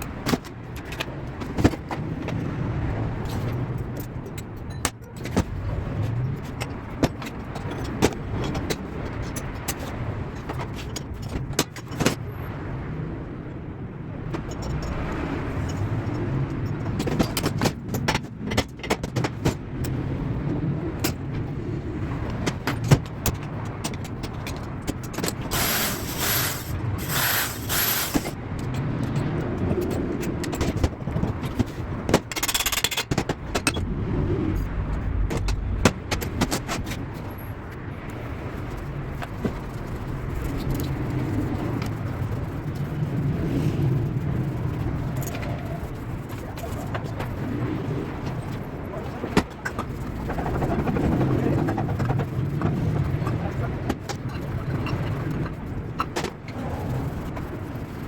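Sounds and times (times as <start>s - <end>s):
tools and metal parts clicking: 3.3s - 5.4s, 14.3s - 20.0s, 32.2s - 33.8s
hissing bursts: 25.5s - 28.4s
low rumble: 33.5s - 37.1s.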